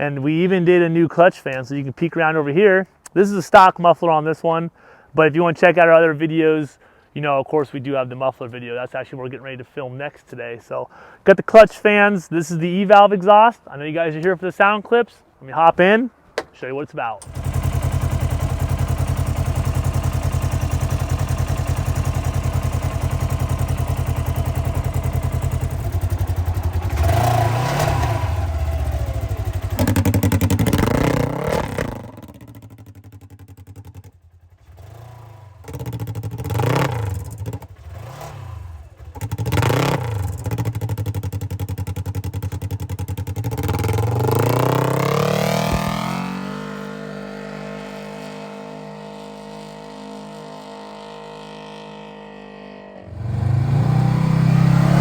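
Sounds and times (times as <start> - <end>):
off-road vehicle engine idling and revving: 17.2 - 55.0.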